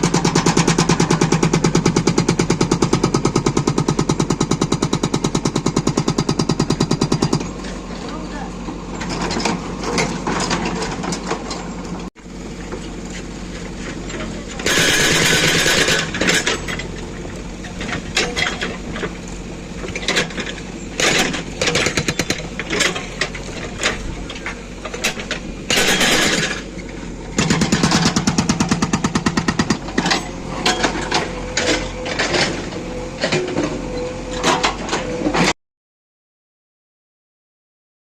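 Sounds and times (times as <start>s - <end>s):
hydraulic breaker hammering stone: 0.0s - 7.6s, 14.5s - 17.0s, 19.9s - 32.6s
diesel engine running: 0.0s - 35.6s
loud noisy burst: 14.6s - 16.2s.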